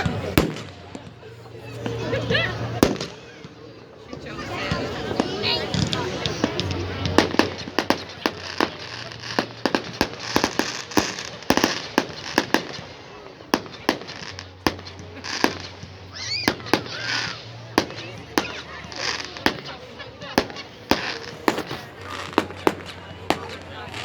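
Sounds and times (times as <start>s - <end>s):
fireworks bangs and crackles: 0.0s - 24.0s
firework hiss: 5.7s - 24.0s.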